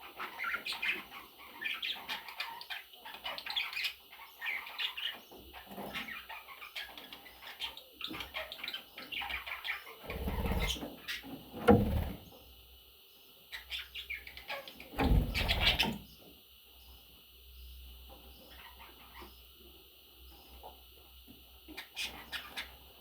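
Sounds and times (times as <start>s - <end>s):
budgerigars chirping: 0.0s - 11.3s, 13.5s - 16.0s, 21.7s - 22.8s.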